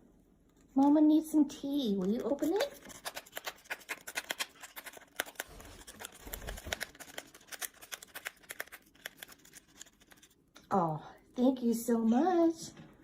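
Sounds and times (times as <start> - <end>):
packaging crinkling and clicking: 2.1 - 10.4
pet tearing wrapper: 2.1 - 10.4.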